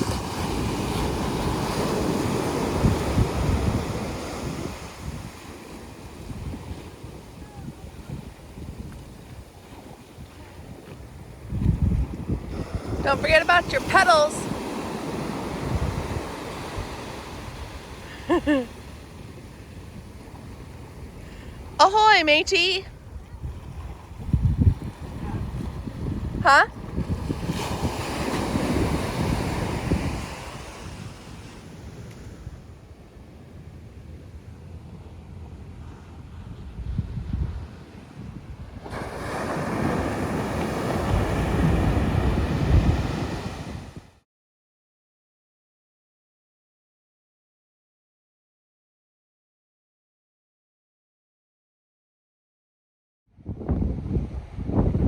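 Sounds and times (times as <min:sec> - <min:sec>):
sea water rushing: 0:00.0 - 0:11.5, 0:12.1 - 0:32.4, 0:38.7 - 0:44.1
wind on microphone: 0:00.0 - 0:18.4, 0:22.5 - 0:44.2, 0:53.4 - 0:55.0.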